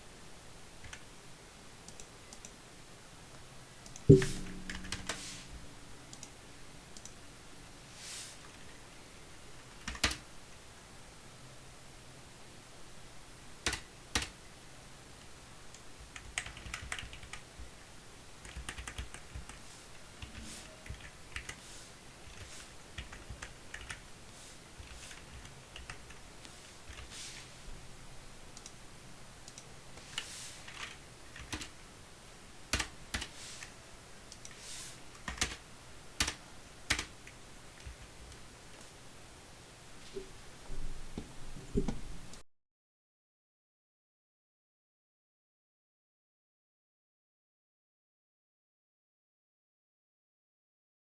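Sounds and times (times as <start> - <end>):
computer keyboard typing: 9.8 - 10.2, 16.1 - 17.4, 18.4 - 19.6, 20.2 - 21.6, 22.2 - 24.0, 24.8 - 26.1, 30.7 - 31.7, 35.2 - 35.6, 36.2 - 37.1.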